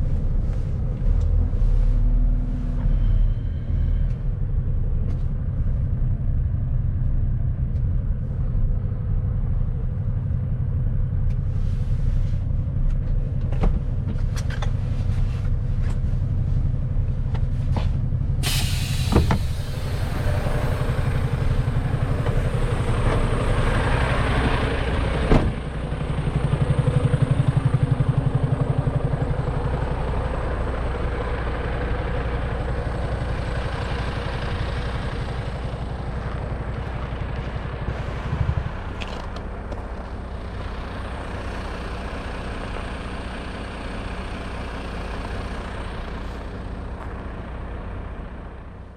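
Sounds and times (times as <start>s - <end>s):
truck diesel engine running: 0.0s - 48.9s
sudden hiss: 18.4s - 21.4s.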